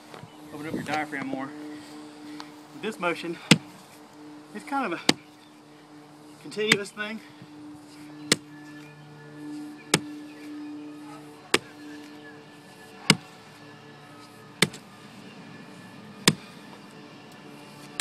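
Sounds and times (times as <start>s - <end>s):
sledgehammer striking tree stump: 5.0s - 5.2s, 8.3s - 8.5s, 11.5s - 11.7s, 13.1s - 13.3s, 14.6s - 14.8s, 16.2s - 16.5s.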